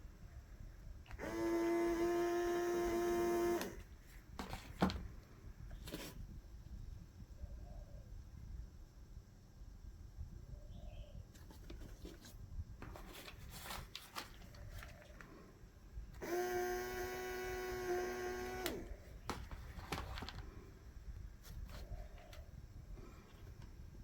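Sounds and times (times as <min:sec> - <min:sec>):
small electric motor whirring: 0:01.1 - 0:03.9, 0:16.2 - 0:19.0.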